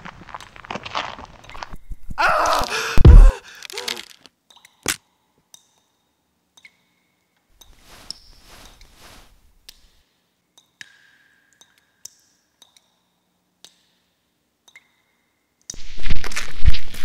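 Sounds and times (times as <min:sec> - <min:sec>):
water dripping in a cave: 0:04.4 - 0:07.8, 0:10.5 - 0:15.8.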